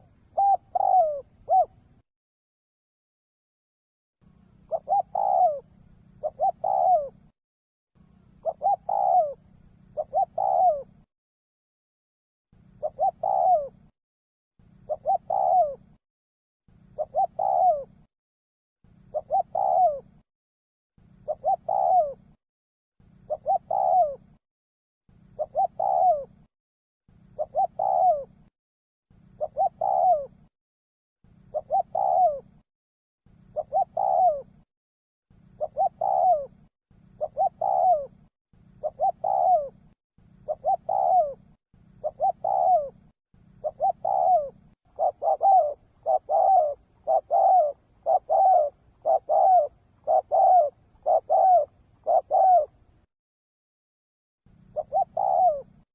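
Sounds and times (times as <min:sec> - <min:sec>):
dove cooing: 0:00.0 - 0:02.0, 0:04.5 - 0:07.3, 0:08.2 - 0:11.1, 0:12.6 - 0:13.9, 0:14.7 - 0:16.0, 0:16.8 - 0:18.1, 0:18.9 - 0:20.2, 0:21.1 - 0:22.4, 0:23.0 - 0:24.4, 0:25.2 - 0:26.5, 0:27.2 - 0:28.5, 0:29.2 - 0:30.5, 0:31.3 - 0:32.6, 0:33.4 - 0:34.6, 0:35.4 - 0:53.0, 0:54.6 - 0:55.9.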